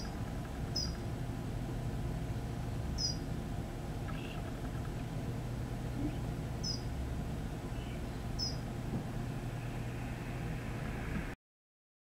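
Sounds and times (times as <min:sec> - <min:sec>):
small birds chirping: 0:00.0 - 0:01.2, 0:02.9 - 0:03.4, 0:04.0 - 0:07.0, 0:07.6 - 0:08.7
low background rumble: 0:00.0 - 0:11.4.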